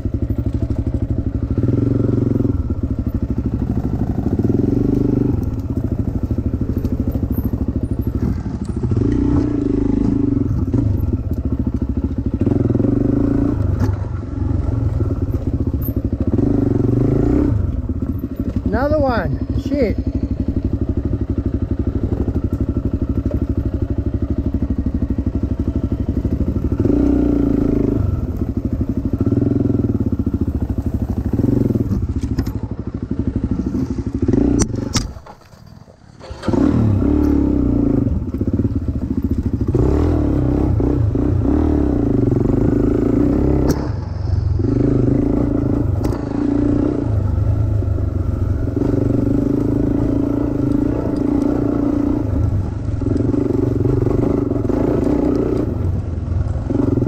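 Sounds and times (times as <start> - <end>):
dirt bike engine revving: 0.0 - 23.8, 24.5 - 32.2, 33.1 - 35.2, 36.2 - 57.0.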